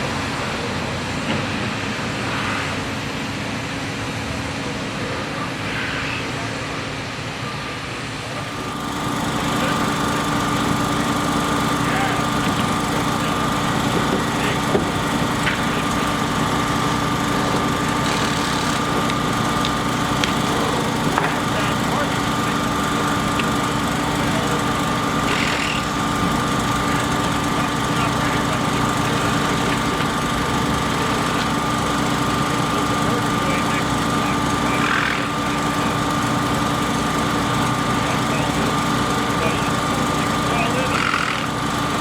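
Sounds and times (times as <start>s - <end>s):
small motor running: 8.3s - 42.0s.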